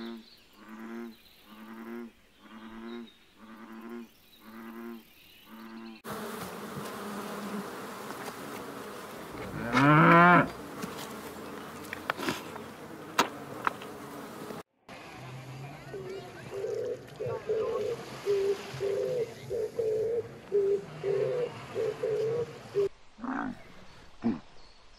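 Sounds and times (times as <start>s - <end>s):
loud rising cow moo: 9.1s - 10.6s
cow lowing: 9.2s - 10.6s.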